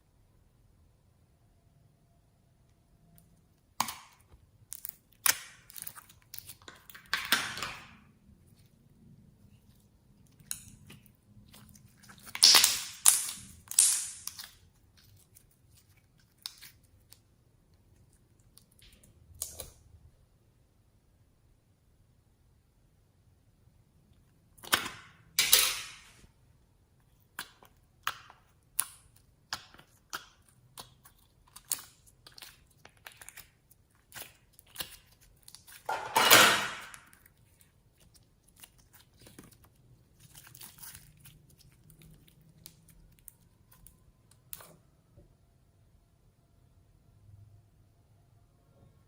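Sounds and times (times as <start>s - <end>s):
slime squelching: 3.2s - 20.0s, 26.0s - 35.9s, 36.6s - 44.9s
slime popping and crackling: 3.6s - 8.0s, 9.6s - 17.2s, 27.2s - 35.9s, 36.6s - 44.7s.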